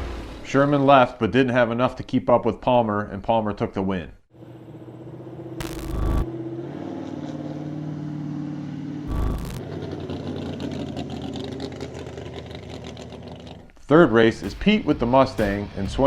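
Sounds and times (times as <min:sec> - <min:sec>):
car engine running: 0:04.4 - 0:13.7
engine crackle: 0:04.4 - 0:13.8
loud bursts of noise: 0:05.6 - 0:06.3, 0:09.1 - 0:09.6.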